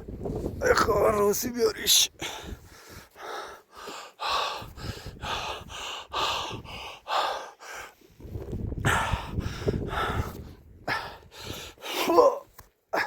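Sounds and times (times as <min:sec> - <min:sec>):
person breathing hard: 0:02.2 - 0:12.2.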